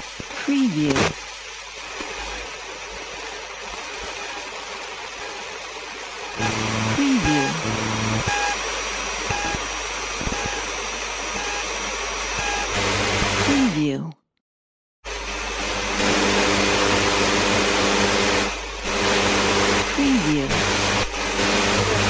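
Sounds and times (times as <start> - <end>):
radio static hiss: 0.0 - 14.0, 18.4 - 22.0
short beeping tone: 6.4 - 8.6.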